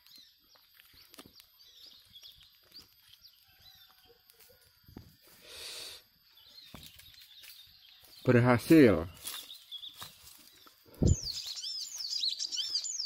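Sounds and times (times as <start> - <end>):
small birds chirping faintly: 0.0 - 13.0.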